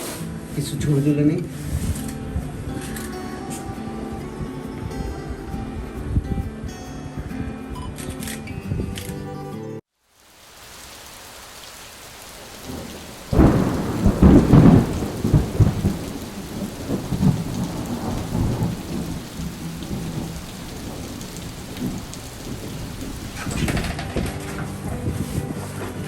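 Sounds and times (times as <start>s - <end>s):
wind buffeting microphone: 1.5s - 2.8s, 12.7s - 26.0s.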